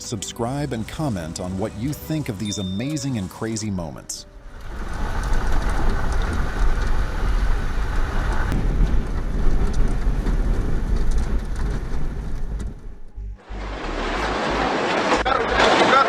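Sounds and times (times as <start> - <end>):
heavy rain: 4.4 - 16.0
storm wind: 4.4 - 16.0
wind buffeting microphone: 4.6 - 13.1.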